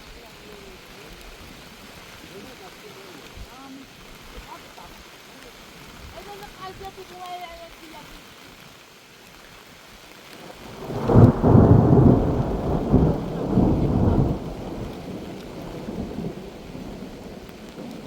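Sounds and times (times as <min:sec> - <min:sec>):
thunder rumbling: 0:10.4 - 0:18.0.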